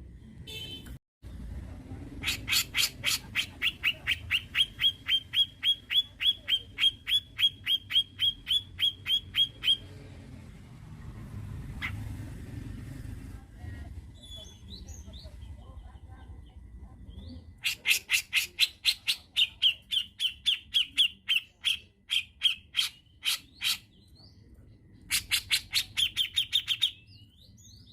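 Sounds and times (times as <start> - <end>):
bird calling sharp notes: 2.2 - 9.9.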